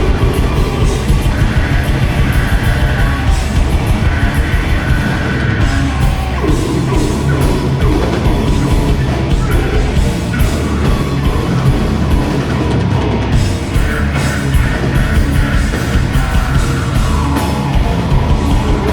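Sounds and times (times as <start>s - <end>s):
screamed vocal: 0.0s - 13.2s
distorted guitars: 0.0s - 18.9s
pounding drums: 0.0s - 18.9s.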